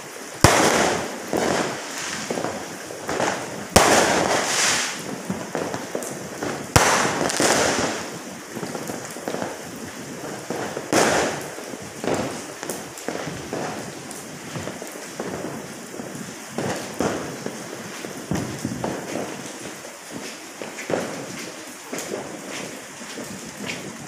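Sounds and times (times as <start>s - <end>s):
fireworks bangs: 0.0s - 24.0s
fireworks crackling: 0.0s - 24.0s
small fireworks pops: 0.0s - 24.0s.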